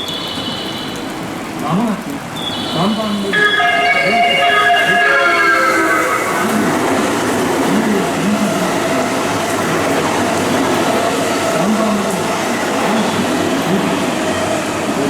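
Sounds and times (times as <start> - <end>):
electric train running: 3.4 - 15.0.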